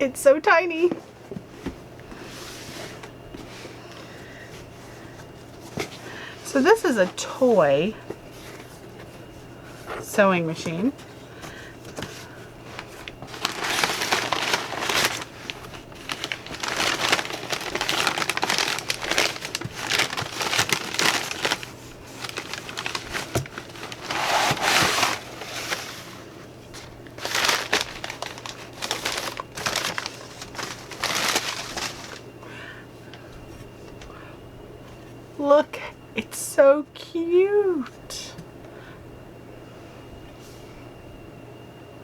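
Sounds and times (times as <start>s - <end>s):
crinkly packaging rustling: 0.7s - 32.4s.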